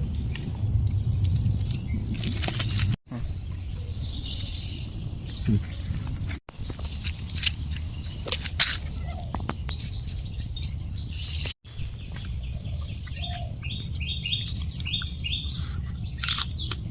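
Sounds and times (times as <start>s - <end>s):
steady low rumble: 0.0s - 8.2s
birds chirping and calling: 0.0s - 16.9s.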